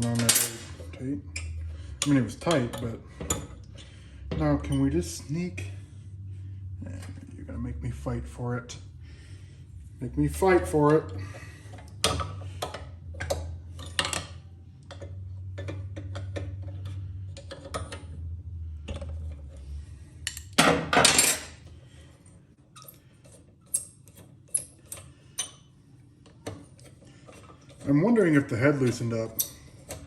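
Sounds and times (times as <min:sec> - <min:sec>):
metal tools clinking on metal: 0:00.0 - 0:03.8, 0:04.6 - 0:05.0, 0:20.3 - 0:21.6, 0:27.3 - 0:30.0
low hum: 0:00.0 - 0:23.1.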